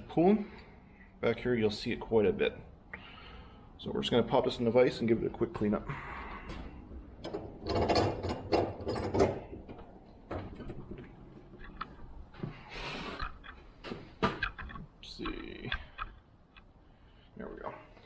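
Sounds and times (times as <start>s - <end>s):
metal clicks and knocks in vise: 7.2s - 12.2s, 13.2s - 14.9s.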